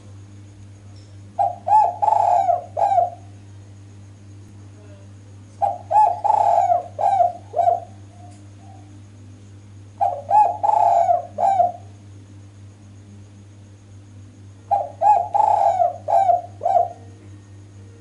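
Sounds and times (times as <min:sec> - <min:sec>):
steady low hum: 0:00.0 - 0:18.0
dove cooing: 0:01.4 - 0:03.4, 0:05.6 - 0:08.9, 0:10.0 - 0:12.0, 0:14.7 - 0:17.4.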